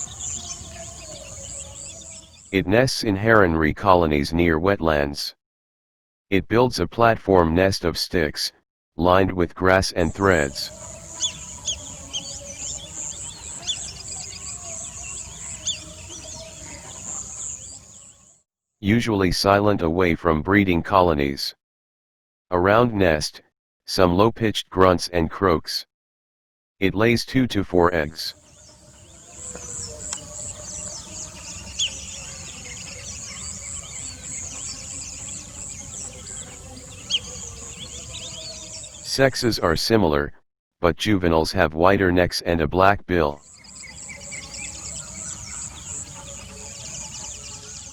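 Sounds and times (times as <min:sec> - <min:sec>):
high pulsing insect trill: 0:00.0 - 0:02.5, 0:10.7 - 0:18.3, 0:28.4 - 0:39.0, 0:43.4 - 0:47.9
birds chirping: 0:00.0 - 0:02.7, 0:10.0 - 0:18.4, 0:28.0 - 0:39.8, 0:43.4 - 0:47.9.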